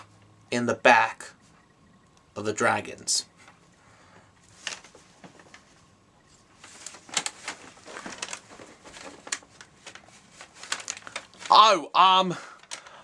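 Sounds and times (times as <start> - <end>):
paper rustling and crinkling: 4.5 - 11.6, 12.5 - 13.0.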